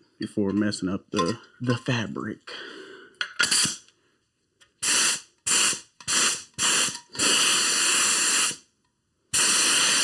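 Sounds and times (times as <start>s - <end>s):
spray gun hissing: 9.4s - 10.0s.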